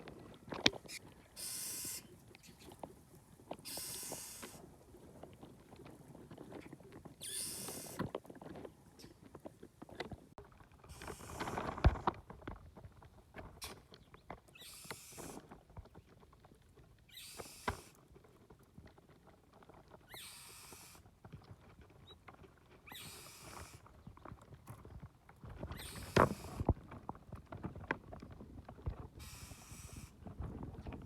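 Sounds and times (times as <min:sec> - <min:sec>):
short rasping hiss: 0:01.4 - 0:02.1, 0:03.6 - 0:04.6.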